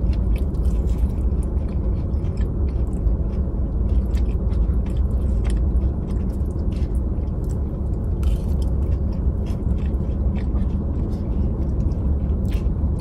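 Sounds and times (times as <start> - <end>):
wet chewing: 0.0 - 13.0.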